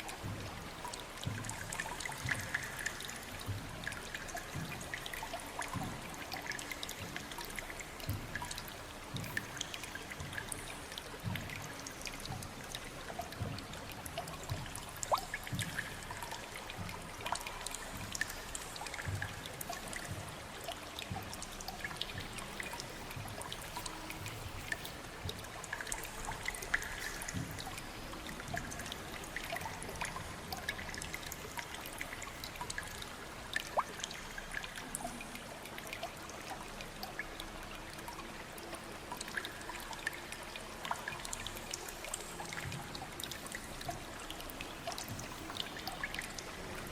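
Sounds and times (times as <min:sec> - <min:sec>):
water trickling: 0:00.0 - 0:46.9
water drops landing: 0:13.1 - 0:34.8.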